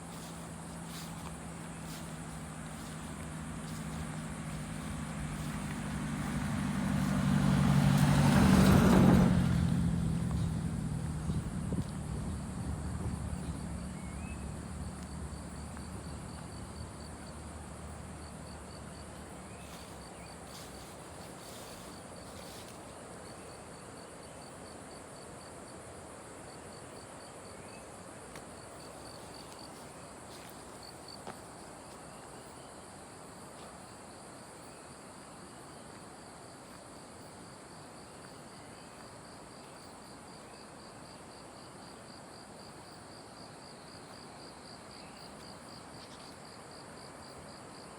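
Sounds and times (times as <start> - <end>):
pulsing insect chirp: 0.0 - 25.5, 28.5 - 47.9
insects droning: 0.0 - 47.9
low rumble: 8.9 - 17.0.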